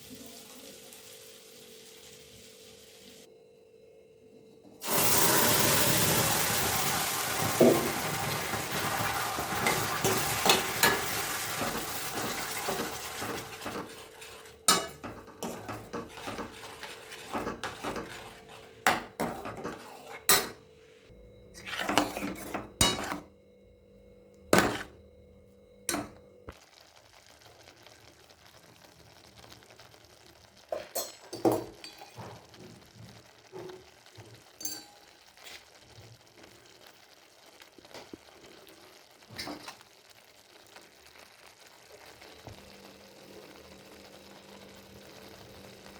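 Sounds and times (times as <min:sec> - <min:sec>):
food sizzling in a hot pan: 0:00.0 - 0:03.3, 0:04.8 - 0:21.0, 0:25.9 - 0:45.9
spoon scraping a pan: 0:06.0 - 0:20.7, 0:21.5 - 0:23.3, 0:24.6 - 0:25.0.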